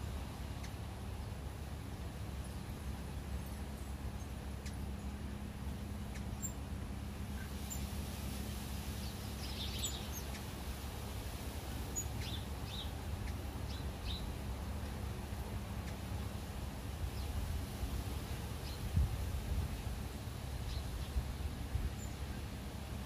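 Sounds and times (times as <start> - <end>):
bird chirps: 9.0 - 10.5, 12.0 - 14.3.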